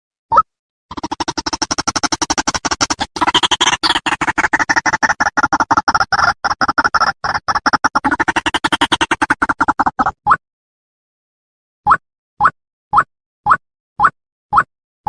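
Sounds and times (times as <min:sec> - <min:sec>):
harsh chattering bird call: 0:00.9 - 0:10.1.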